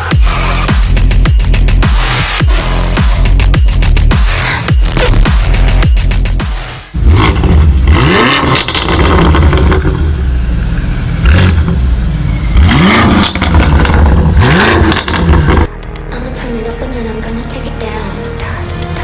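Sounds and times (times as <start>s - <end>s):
motor vehicle accelerating hard: 6.9s - 15.7s.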